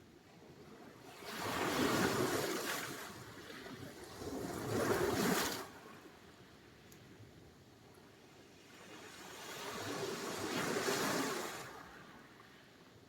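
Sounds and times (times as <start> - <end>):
waves washing up shore: 9.0 - 12.3.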